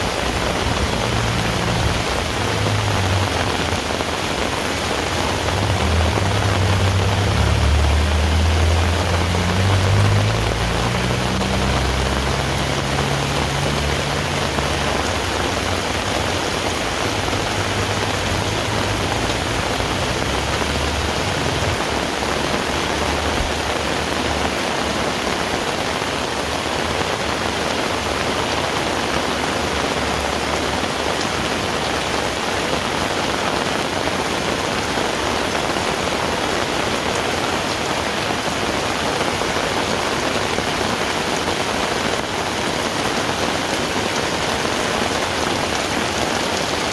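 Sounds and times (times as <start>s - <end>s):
heavy rain falling: 0.0s - 46.9s
low motor hum: 4.9s - 22.5s.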